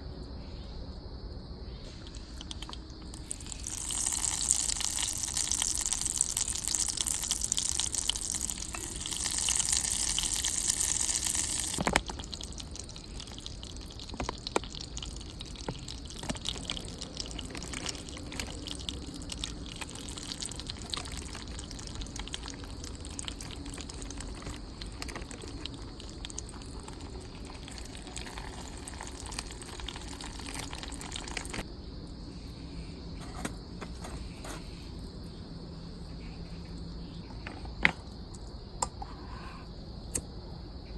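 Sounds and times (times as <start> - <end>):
water running: 2.1 - 31.6.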